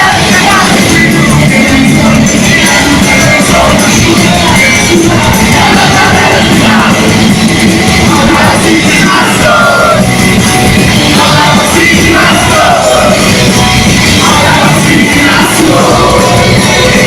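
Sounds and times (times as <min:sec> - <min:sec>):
person singing: 0:00.0 - 0:10.1, 0:10.9 - 0:17.0
live rock band playing: 0:00.0 - 0:17.0.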